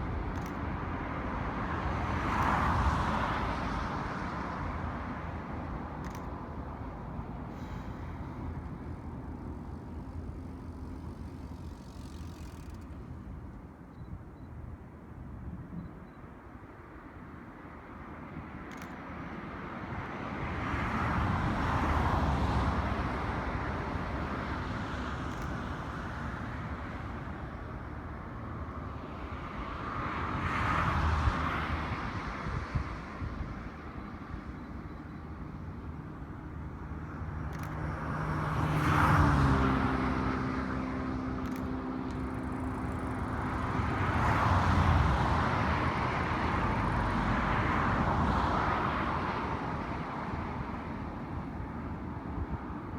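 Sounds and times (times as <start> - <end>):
vehicles passing: 0.0 - 15.5, 16.3 - 52.9.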